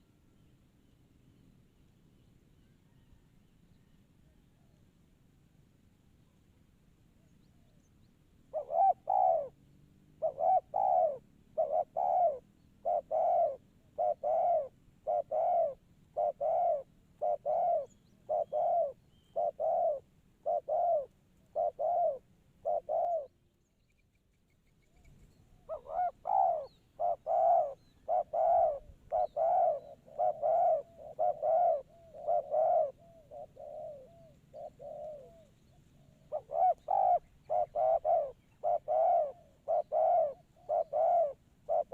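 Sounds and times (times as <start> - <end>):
dove cooing: 8.5 - 23.4, 25.5 - 41.9.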